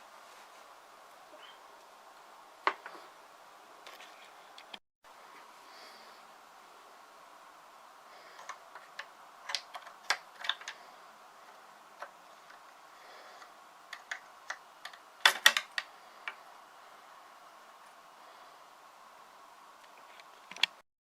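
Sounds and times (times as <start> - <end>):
wooden sticks clicking and knocking: 8.4 - 10.8, 13.4 - 16.4.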